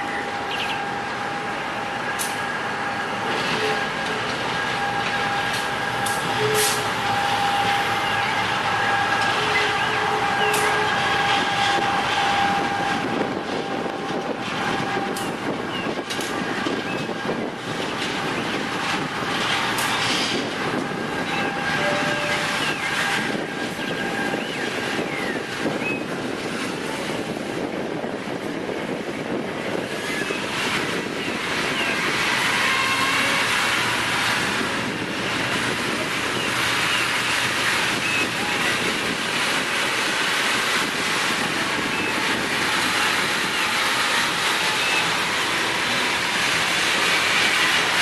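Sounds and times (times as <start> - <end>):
train rolling on rails: 0.0 - 48.0
sharp track clicks: 5.1 - 6.9, 13.8 - 16.4.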